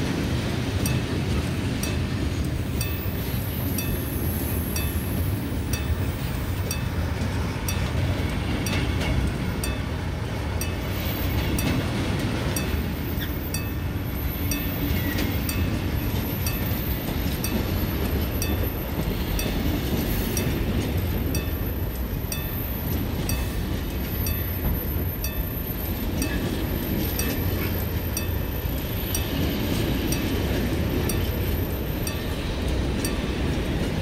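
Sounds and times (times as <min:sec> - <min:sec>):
wheels clicking over rail joints: 0:00.0 - 0:34.0
wheels rumbling on rails: 0:00.0 - 0:34.0.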